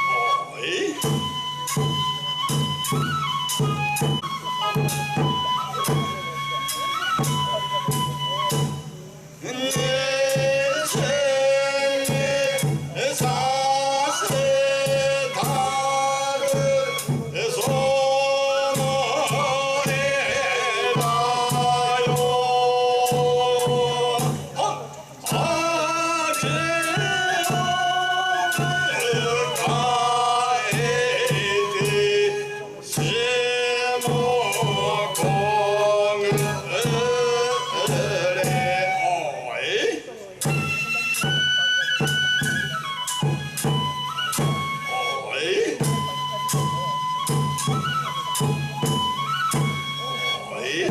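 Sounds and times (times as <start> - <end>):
struck percussion beat: 0.0 - 39.0, 40.4 - 45.1, 45.8 - 50.0
drum and cymbal strokes: 0.0 - 50.9
men chanting held notes: 9.2 - 40.6, 44.4 - 46.7, 48.4 - 50.9.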